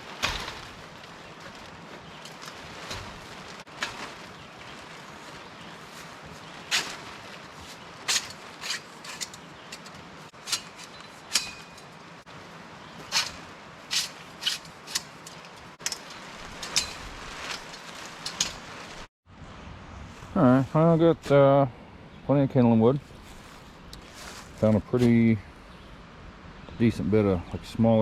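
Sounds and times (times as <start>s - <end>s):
dry twigs cracking and snapping: 0.0s - 11.9s, 13.0s - 19.1s.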